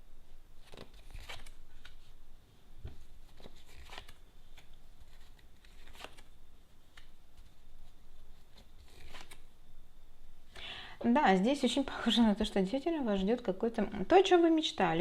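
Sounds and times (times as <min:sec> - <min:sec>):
cards snapping and rustling: 0:00.6 - 0:02.0, 0:02.9 - 0:06.3, 0:08.5 - 0:09.4.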